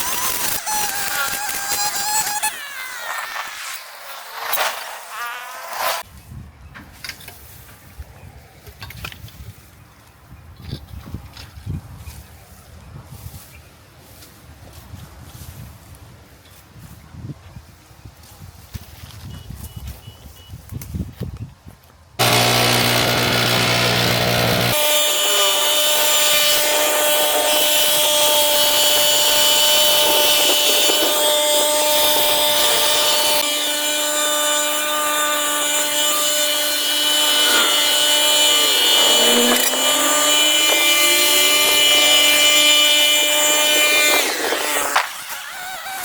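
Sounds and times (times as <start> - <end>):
power tool running: 0.0 - 6.0, 22.2 - 46.0.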